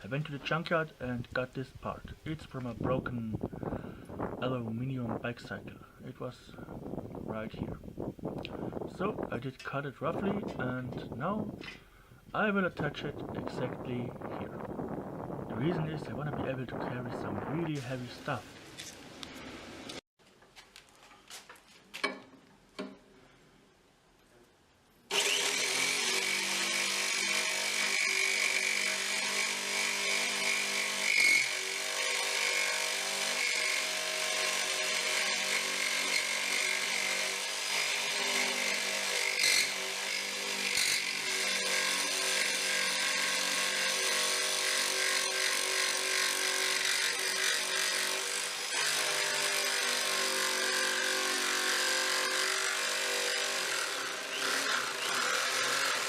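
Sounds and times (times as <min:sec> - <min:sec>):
electric power tool cutting metal: 0:25.1 - 0:56.0.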